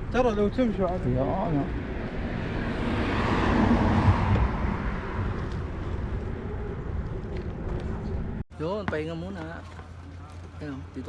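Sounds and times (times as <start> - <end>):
rushing wind on microphone: 1.4 - 8.4.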